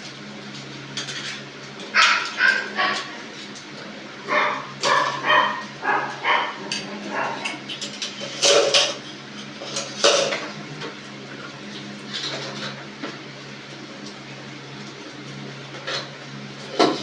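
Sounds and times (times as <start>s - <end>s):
steady low hum: 1.9s - 8.6s
dog barking: 2.0s - 3.3s, 4.2s - 7.6s.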